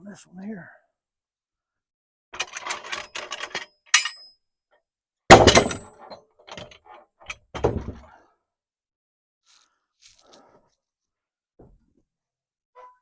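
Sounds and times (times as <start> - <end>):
wooden boards knocking and clattering: 5.3 - 8.0.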